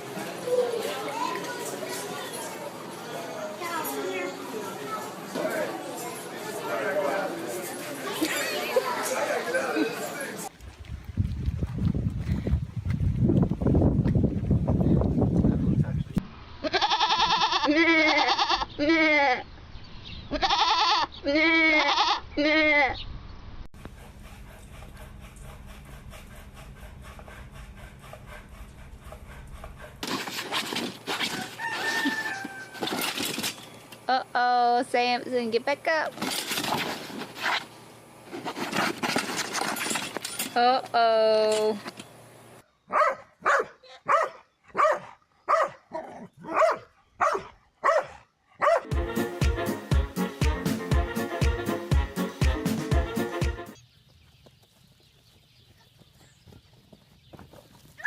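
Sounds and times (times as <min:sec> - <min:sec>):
goat bleating: 0:16.6 - 0:19.4, 0:20.3 - 0:23.0
dog barking: 0:42.9 - 0:48.9
rhythmic scraping strokes: 0:48.9 - 0:53.8.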